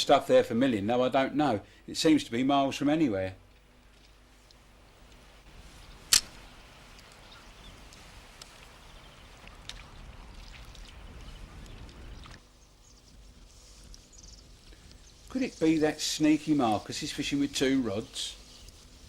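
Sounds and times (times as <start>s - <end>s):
sharp click: 6.1s - 6.4s.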